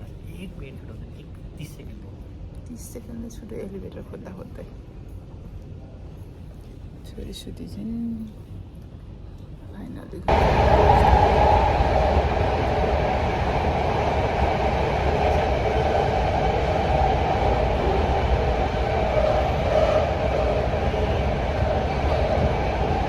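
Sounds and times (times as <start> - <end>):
train rumbling: 10.3 - 23.0.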